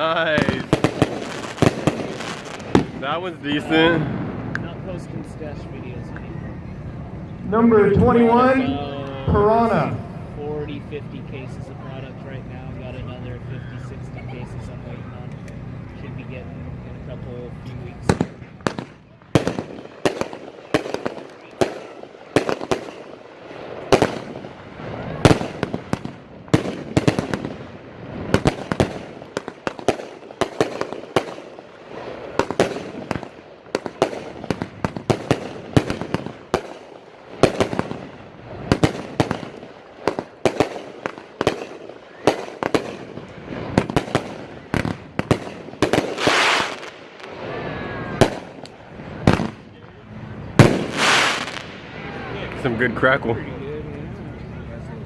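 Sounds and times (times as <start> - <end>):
aerial firework breaks crackling: 0.0 - 5.0, 18.0 - 49.7, 50.6 - 52.4.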